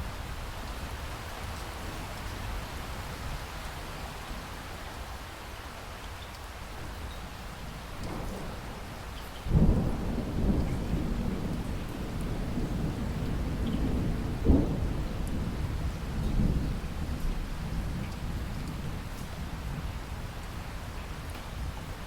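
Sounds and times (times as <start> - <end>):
rain falling: 0.0 - 22.0
thunder rumbling: 8.0 - 19.9.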